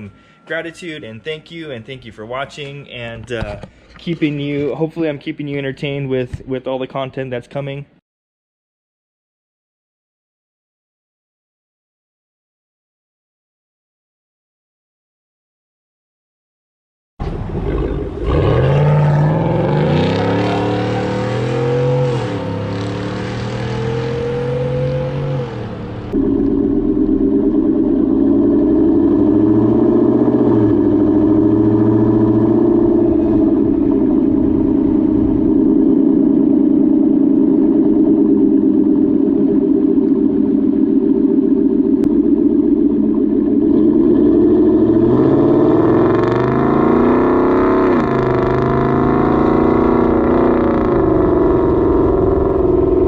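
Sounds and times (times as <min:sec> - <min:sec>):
deep truck exhaust note: 0:00.0 - 0:02.4, 0:17.2 - 0:53.0.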